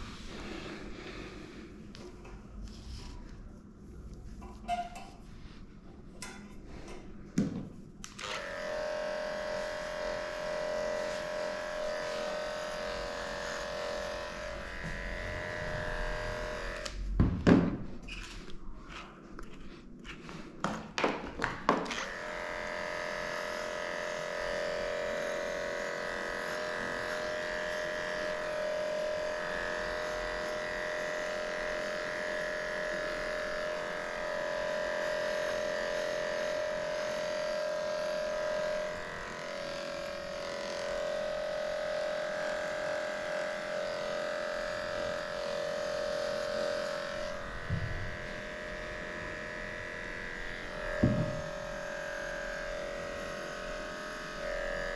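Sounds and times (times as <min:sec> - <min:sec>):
electric clippers humming: 0:08.0 - 0:17.1, 0:21.8 - 0:54.9.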